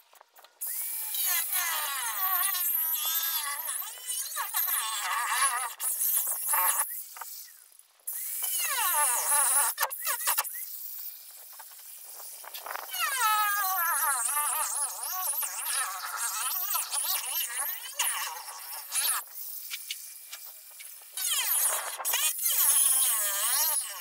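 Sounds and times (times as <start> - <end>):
high-pitched power tool whining: 0.6 - 24.0.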